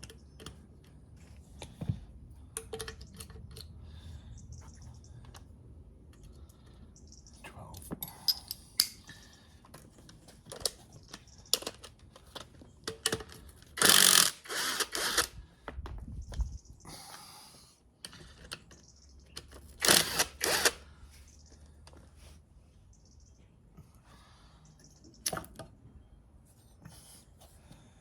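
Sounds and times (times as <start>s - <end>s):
rasping bursts: 13.8s - 15.3s, 19.8s - 20.8s.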